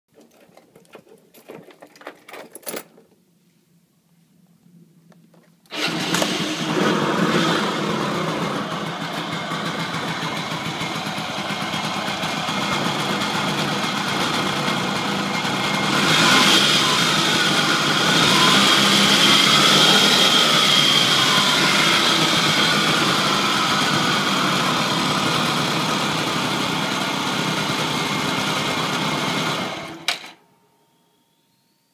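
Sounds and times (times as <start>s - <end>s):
scooter engine running: 5.7s - 30.3s.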